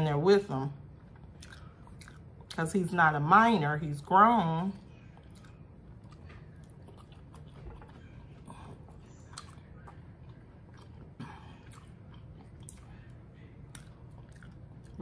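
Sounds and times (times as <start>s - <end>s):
person chewing food: 0.9s - 2.6s, 4.8s - 15.0s.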